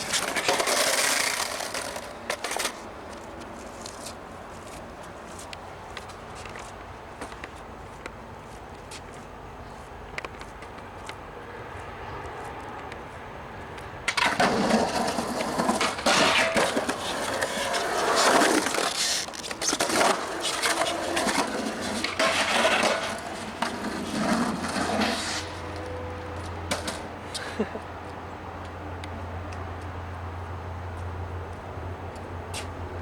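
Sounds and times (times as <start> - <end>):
skateboard wheels rolling on concrete: 0.0 - 33.0.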